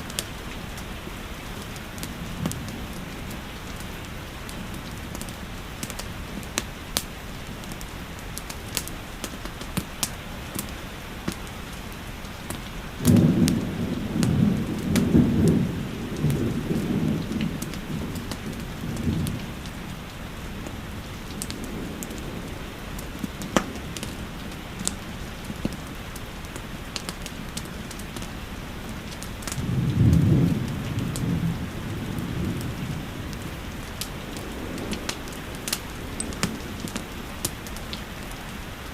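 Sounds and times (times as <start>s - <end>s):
fireplace crackling: 0.0s - 29.6s, 30.6s - 38.9s
steady rain: 0.0s - 38.9s
thunder rolling: 13.0s - 25.6s, 29.5s - 38.0s.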